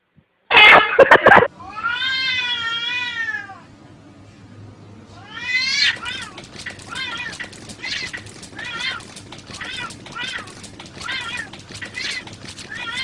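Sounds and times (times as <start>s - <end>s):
cat meowing: 5.2s - 9.0s.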